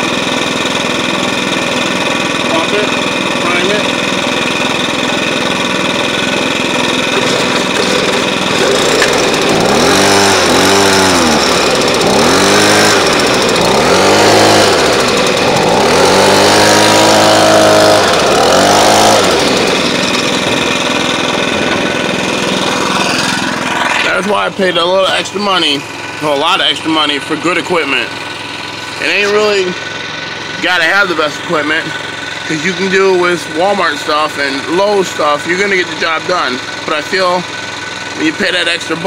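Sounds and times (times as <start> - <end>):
small gas engine droning: 0.0 - 39.0
small gas engine revving: 0.0 - 39.0.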